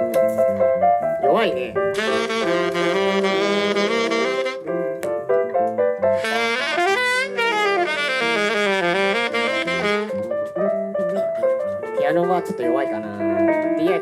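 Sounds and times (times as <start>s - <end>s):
saxophone playing jazz: 1.9s - 4.8s, 6.1s - 11.3s.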